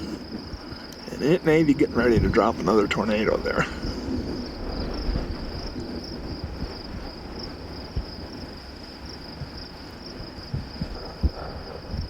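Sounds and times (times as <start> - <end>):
insect chorus trilling: 0.0 - 12.0
wind rumble on microphone: 0.0 - 12.0.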